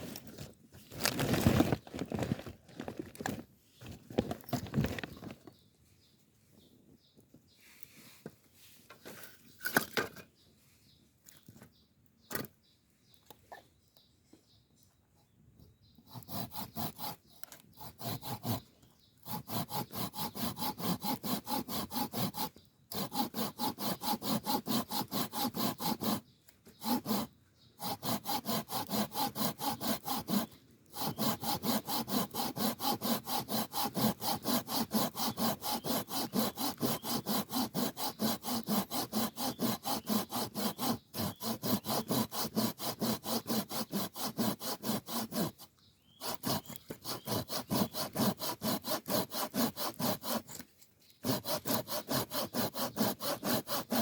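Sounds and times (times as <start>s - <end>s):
hand saw cutting wood: 16.0s - 54.0s.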